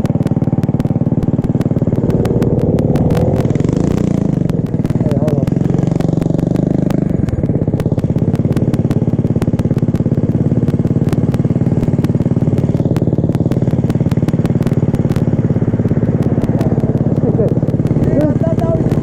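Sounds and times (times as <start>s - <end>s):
sharp clicks: 0.0s - 19.0s
small engine running steadily: 0.0s - 19.0s.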